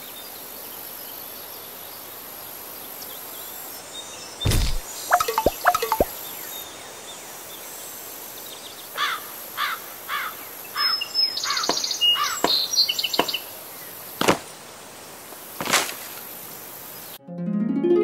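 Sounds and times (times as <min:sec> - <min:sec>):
bird chirping: 0:04.5 - 0:06.1
high quick twittering: 0:04.5 - 0:06.1
sharp clicks or knocks: 0:04.5 - 0:06.1.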